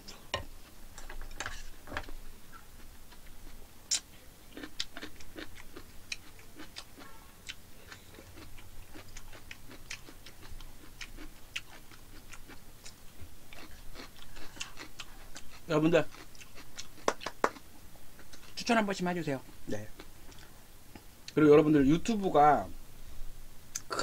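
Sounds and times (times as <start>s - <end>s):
person chewing: 0.0s - 17.6s, 19.8s - 21.4s.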